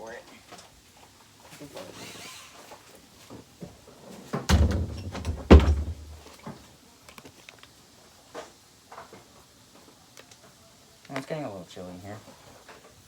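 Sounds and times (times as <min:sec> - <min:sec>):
heavy thuds with deep rumble: 0:04.5 - 0:06.2.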